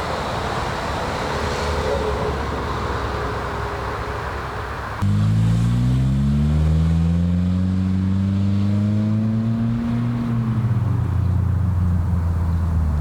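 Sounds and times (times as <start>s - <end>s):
car engine accelerating: 4.9s - 13.0s.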